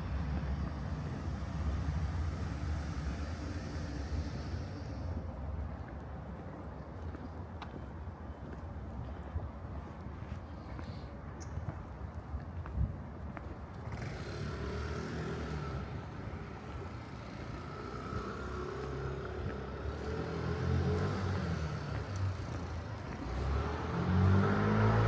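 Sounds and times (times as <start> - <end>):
vehicle engine running close by: 0.0 - 5.2, 13.8 - 25.0
city street noise hum: 0.0 - 25.0.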